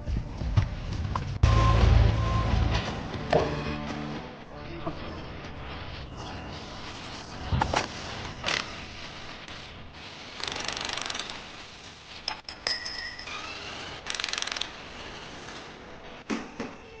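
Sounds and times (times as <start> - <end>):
ratchet clicking: 10.4 - 11.4, 12.7 - 14.8.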